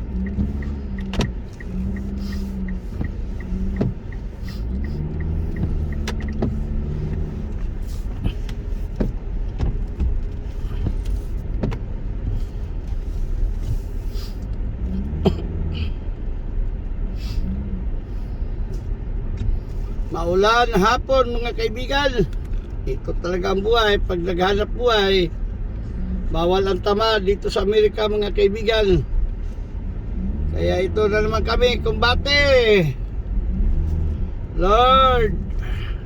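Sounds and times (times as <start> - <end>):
road and engine rumble: 0.0 - 36.0
sharp clicks and knocks: 3.0 - 7.2.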